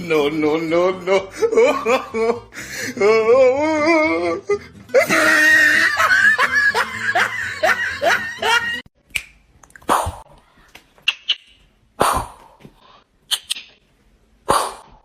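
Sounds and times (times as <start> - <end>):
person laughing: 0.5 - 8.8
wavering vocal sound: 2.9 - 5.5.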